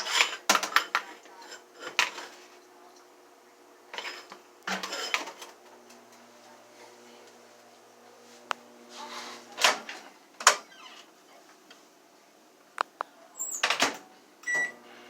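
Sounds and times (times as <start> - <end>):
dishes and utensils clattering: 0.0 - 2.5, 3.9 - 5.6.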